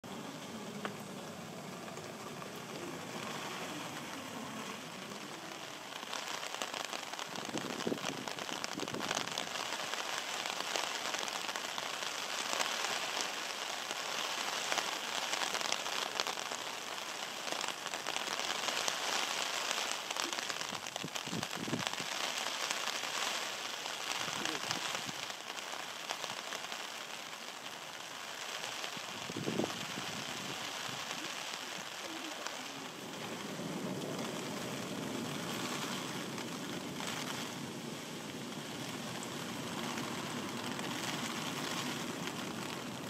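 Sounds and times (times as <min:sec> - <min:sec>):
heavy rain on grass and pavement: 0:00.0 - 0:43.0.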